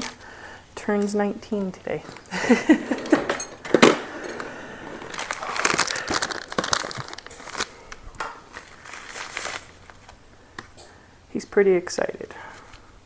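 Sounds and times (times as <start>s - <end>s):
plastic packaging crinkling: 3.4s - 10.3s.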